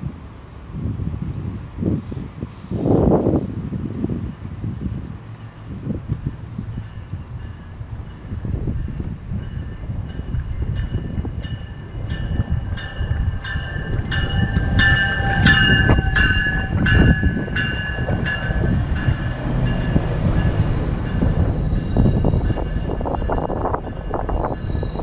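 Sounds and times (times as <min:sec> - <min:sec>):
train coaches rumbling: 0:00.0 - 0:25.0
train bell ringing: 0:06.6 - 0:25.0
train wheel clicks: 0:10.2 - 0:15.9.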